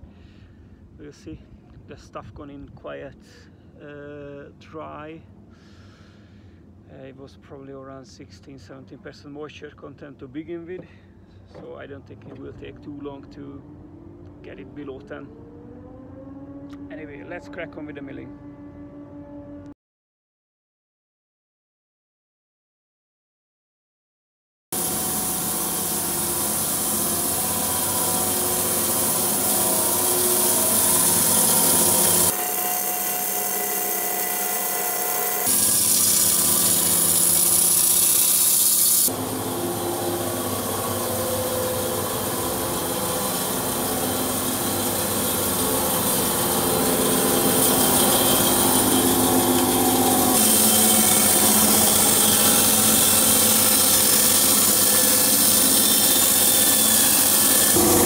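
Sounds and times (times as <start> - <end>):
sawmill machine hum: 10.8 - 19.7, 24.8 - 58.0
saw blade hissing in wood: 24.8 - 58.0.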